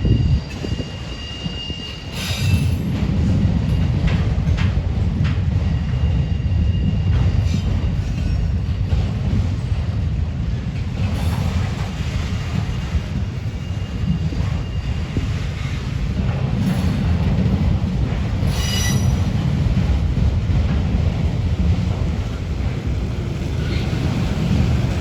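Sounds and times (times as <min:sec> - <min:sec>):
faint high wheel squeal: 0:00.0 - 0:02.8, 0:13.5 - 0:15.8, 0:18.5 - 0:19.2
freight train rolling past: 0:00.0 - 0:25.0.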